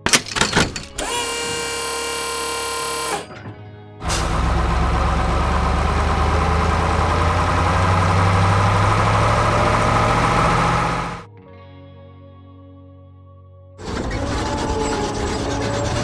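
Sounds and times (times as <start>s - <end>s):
heavy diesel engine running: 0.9s - 3.3s, 4.0s - 11.3s.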